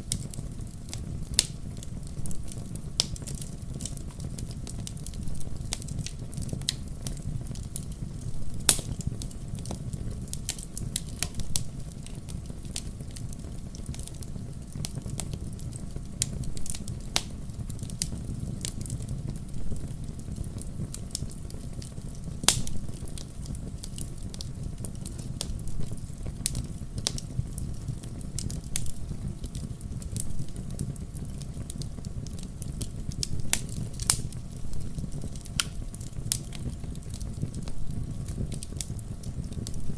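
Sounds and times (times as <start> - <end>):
flames rumbling: 0.0 - 39.9
logs crackling and popping: 0.0 - 39.9.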